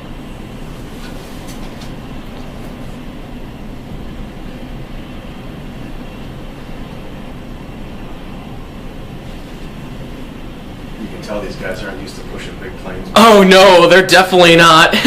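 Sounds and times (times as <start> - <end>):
jet engines idling: 0.0 - 15.0.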